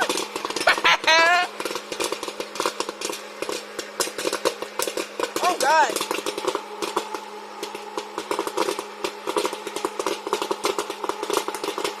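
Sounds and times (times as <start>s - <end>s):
machine hum: 0.0s - 12.0s
popcorn popping: 0.0s - 12.0s.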